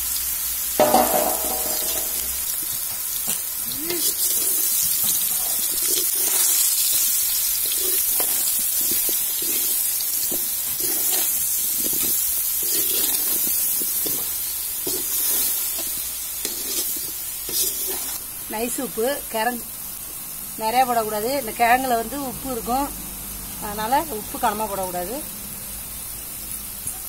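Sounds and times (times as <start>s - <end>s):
food sizzling in hot oil: 0.0s - 27.0s
ladle scraping and knocking pan: 0.8s - 2.4s.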